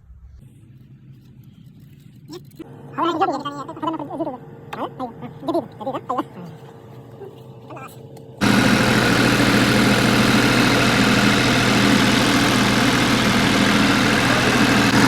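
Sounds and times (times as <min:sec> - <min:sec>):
generator engine running: 0:08.4 - 0:15.0.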